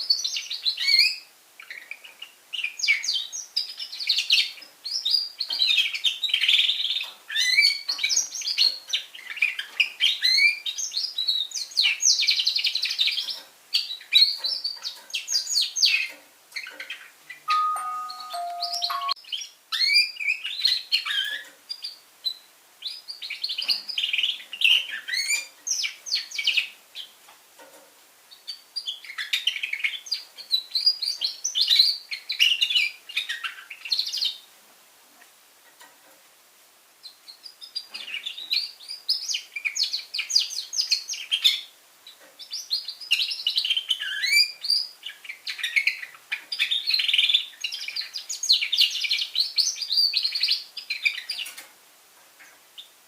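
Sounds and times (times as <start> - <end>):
canary singing trills: 0.0 - 27.2, 37.0 - 51.6.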